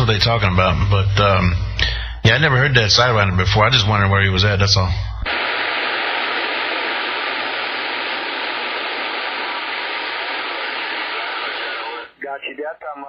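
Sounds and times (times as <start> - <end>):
radio static hiss: 5.2 - 13.0.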